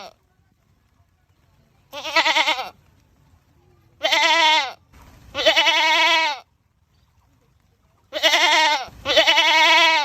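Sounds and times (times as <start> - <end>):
goat screaming: 8.1 - 10.0.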